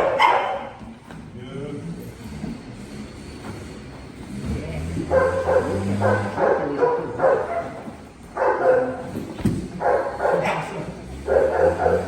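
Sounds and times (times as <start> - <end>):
dog calling: 5.1 - 7.8, 9.8 - 12.0.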